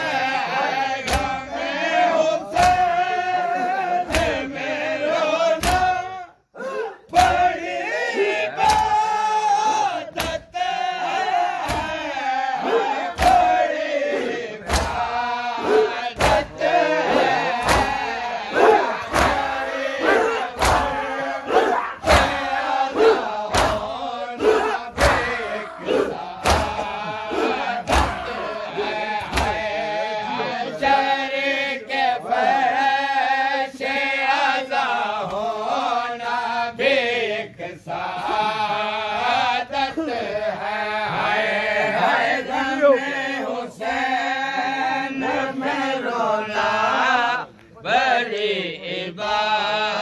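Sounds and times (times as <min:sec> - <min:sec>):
men chanting together: 0:00.0 - 0:50.0
hands striking chests: 0:17.5 - 0:18.1, 0:18.7 - 0:21.0, 0:21.6 - 0:22.4, 0:23.5 - 0:23.9, 0:24.5 - 0:28.3.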